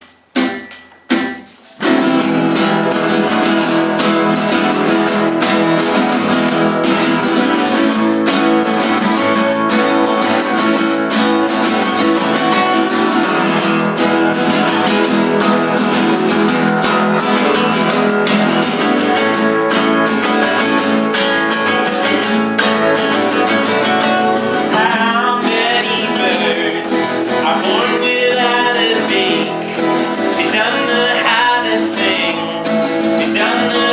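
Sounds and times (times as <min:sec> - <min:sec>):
acoustic guitar strumming: 0:00.0 - 0:33.9
person singing: 0:07.4 - 0:33.9.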